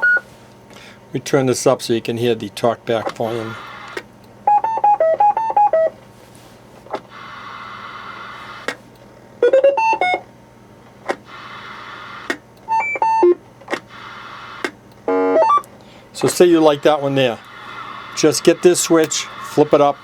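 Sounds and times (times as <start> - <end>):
radio static hiss: 3.0 - 4.1, 7.0 - 8.9, 11.2 - 12.4, 13.8 - 14.8, 16.1 - 20.0
sharp clicks: 3.9 - 4.3, 12.2 - 12.7, 13.6 - 15.0, 15.6 - 19.9
electronic beep tunes: 15.2 - 15.6.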